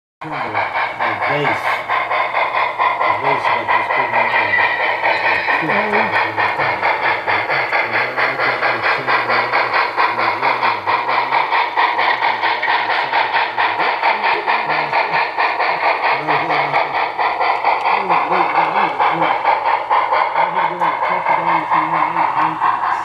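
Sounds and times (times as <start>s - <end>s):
hiss: 0.2s - 23.0s
fast mechanical clatter: 0.3s - 23.0s.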